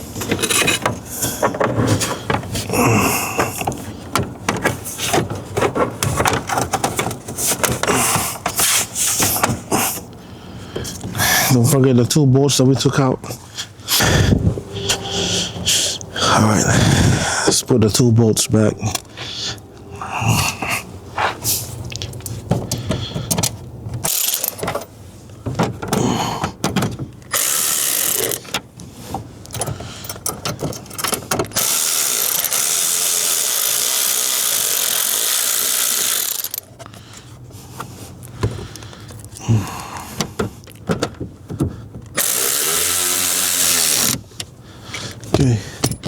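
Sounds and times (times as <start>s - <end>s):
metal scrapes: 13.4s - 17.5s
ratchet wrench clicking: 24.0s - 24.6s, 27.3s - 28.5s, 31.5s - 36.7s, 42.2s - 44.2s.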